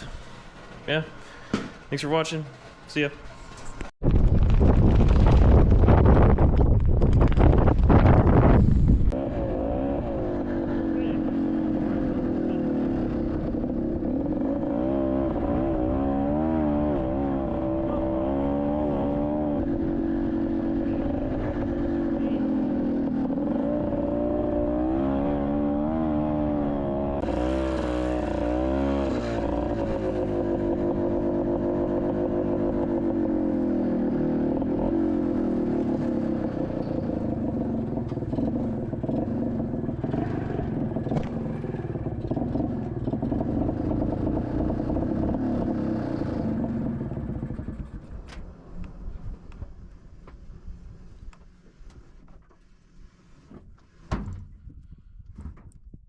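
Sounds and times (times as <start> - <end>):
two-stroke engine running: 15.9 - 48.1.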